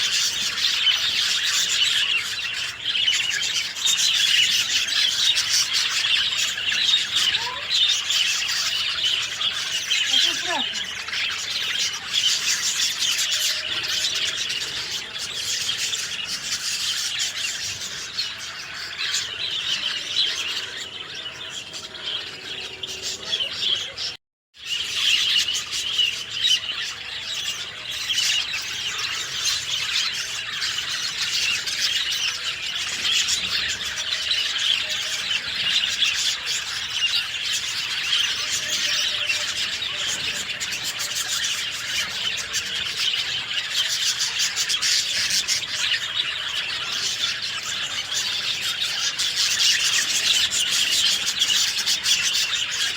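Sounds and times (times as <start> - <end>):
birds chirping and twittering: 0.0 - 52.9
squealing bird calls: 0.0 - 52.9.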